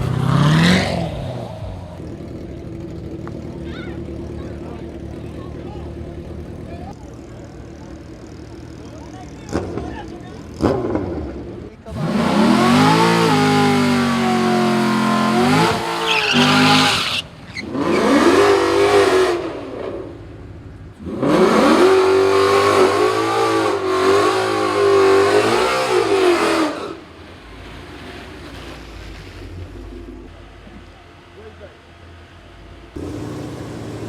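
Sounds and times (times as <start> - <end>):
engine idling rumble: 0.0 - 11.9, 19.9 - 21.0, 27.0 - 34.0
car engine revving: 0.0 - 34.0.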